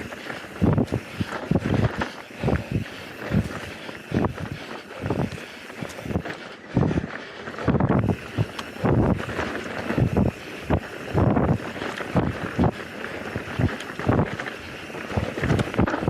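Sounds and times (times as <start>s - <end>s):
bike thumps and rattles: 0.0s - 16.0s
bike tyres rolling over dirt: 0.0s - 16.0s
wind on microphone: 0.0s - 16.0s.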